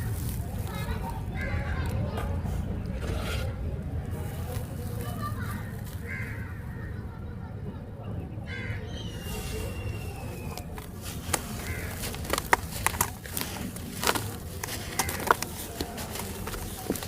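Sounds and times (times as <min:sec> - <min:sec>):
sand crumbling in hands: 0:00.0 - 0:01.6, 0:09.2 - 0:17.0.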